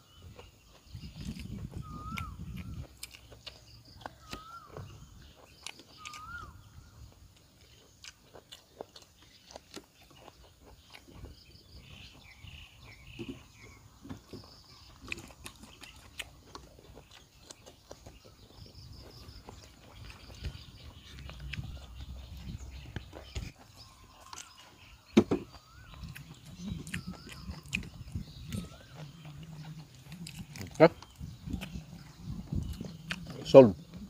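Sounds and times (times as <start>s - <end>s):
birds chirping: 0.0s - 34.0s
person crunching vegetables: 0.0s - 34.0s
mouth clicks: 0.4s - 6.6s, 25.5s - 34.0s
whistled bird calls: 1.0s - 2.9s, 3.9s - 6.9s, 18.2s - 29.8s.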